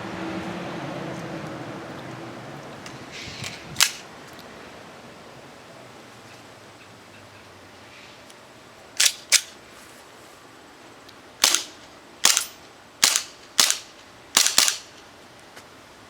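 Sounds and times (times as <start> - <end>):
airsoft pistol shots: 11.4 - 14.9.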